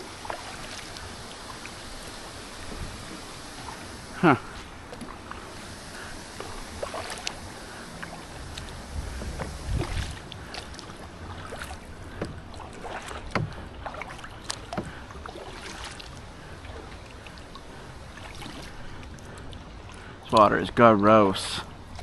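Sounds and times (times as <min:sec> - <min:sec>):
paddle splashing in water: 0:00.0 - 0:20.5, 0:21.6 - 0:22.0
paddle knocking against hull: 0:08.0 - 0:16.1.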